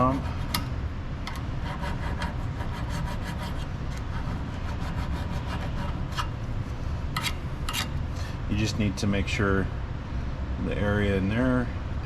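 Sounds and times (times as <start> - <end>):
scraping rust off metal: 0.0 - 8.2.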